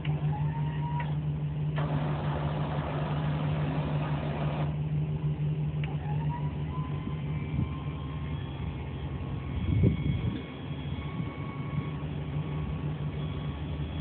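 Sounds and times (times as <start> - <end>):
truck engine idling: 0.0 - 9.6
crane motor whining: 0.0 - 14.0.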